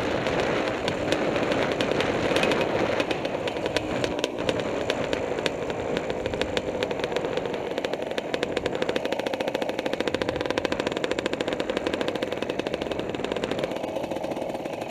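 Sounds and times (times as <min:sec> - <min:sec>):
two-stroke engine running: 0:00.0 - 0:14.9.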